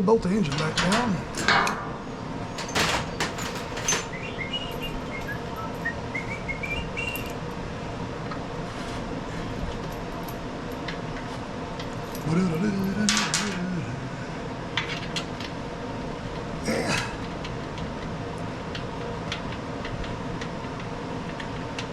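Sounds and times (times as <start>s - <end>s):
steady background hum: 0.0s - 21.9s
bird chirping: 3.8s - 7.4s.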